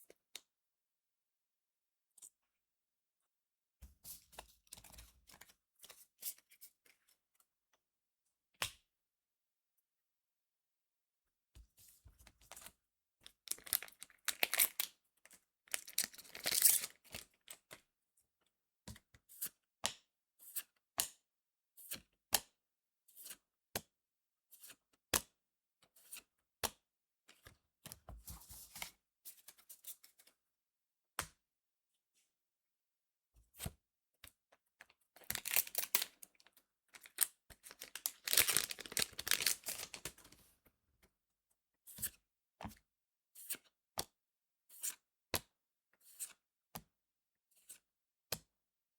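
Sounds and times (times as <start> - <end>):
wrappers tearing and crinkling: 13.5 - 14.9, 15.7 - 17.2, 35.2 - 36.1, 37.0 - 40.4
cards clicking and snapping: 37.0 - 40.4.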